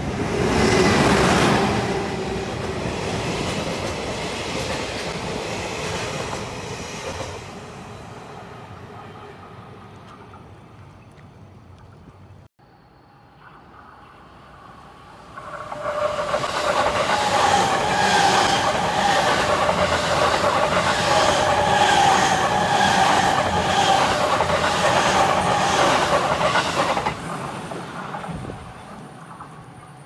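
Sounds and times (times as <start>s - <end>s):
train wheels clattering: 15.4s - 29.7s.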